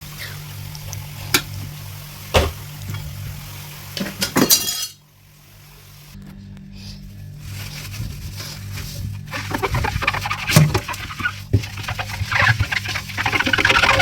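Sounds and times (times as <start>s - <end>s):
low steady hum: 0.0s - 14.0s
dishes clinking in refrigerator: 4.0s - 5.0s.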